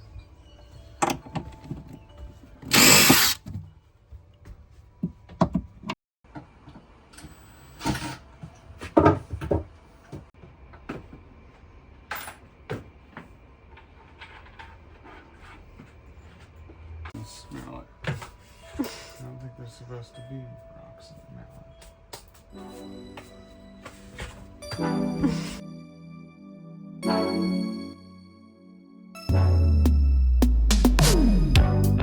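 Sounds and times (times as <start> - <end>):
power tool burst: 2.7 - 3.4.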